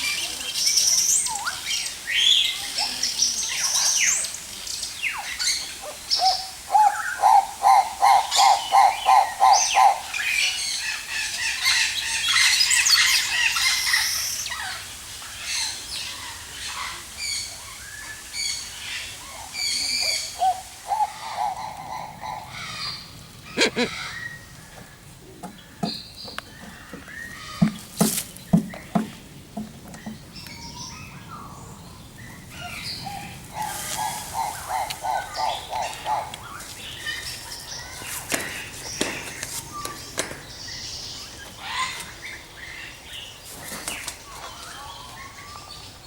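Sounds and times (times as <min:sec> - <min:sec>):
birds chirping and calling: 0:00.0 - 0:46.0
lower evenly spaced bird notes: 0:28.4 - 0:38.0.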